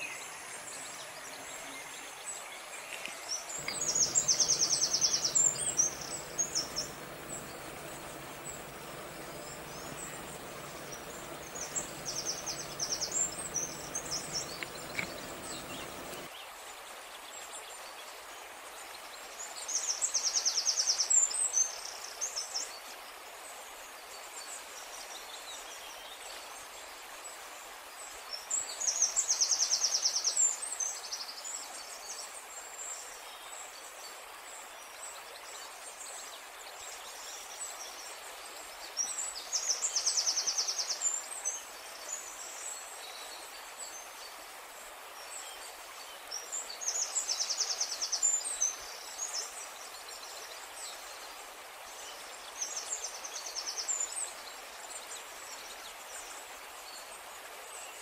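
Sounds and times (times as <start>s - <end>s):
steady outdoor hiss: 0.0s - 58.0s
bird trilling and chirping: 3.6s - 16.3s.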